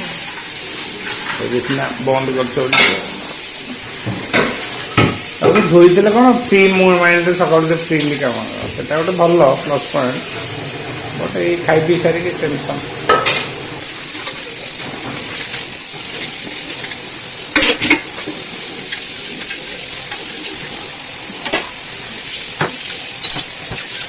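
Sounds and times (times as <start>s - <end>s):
running water hissing: 0.0s - 24.0s
steel dishes clinking: 2.6s - 3.2s, 13.1s - 13.6s, 22.6s - 24.0s.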